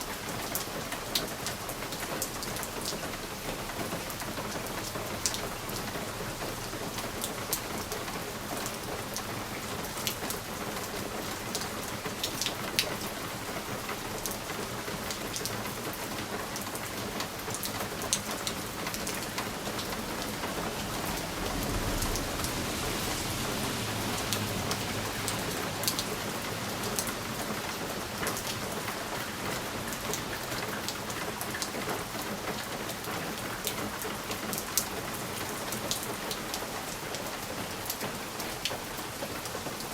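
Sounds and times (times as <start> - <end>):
rain pattering on a window: 0.0 - 39.9
low rumble: 20.6 - 24.8.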